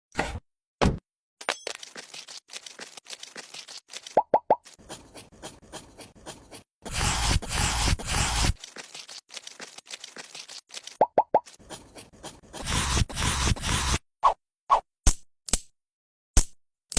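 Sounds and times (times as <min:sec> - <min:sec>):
hand tool scraping: 0:01.8 - 0:13.9.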